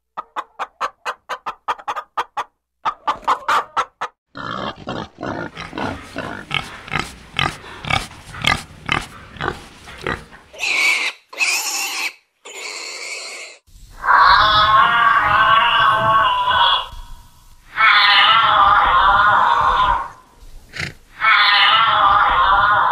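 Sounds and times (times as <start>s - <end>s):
chickens clucking: 0.1s - 4.2s
pigs grunting: 4.3s - 17.0s, 17.8s - 22.9s.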